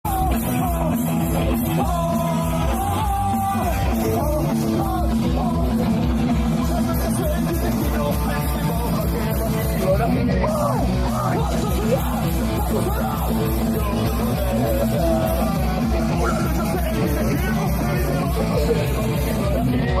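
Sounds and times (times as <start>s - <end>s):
live punk rock band: 0.0s - 20.0s
shouted vocals: 6.8s - 20.0s.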